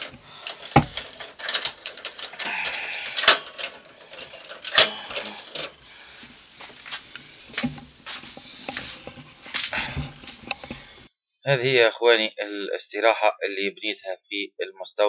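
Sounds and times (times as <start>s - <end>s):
rustling handling sounds: 0.0s - 11.1s
sharp clicks and knocks: 6.9s - 10.9s.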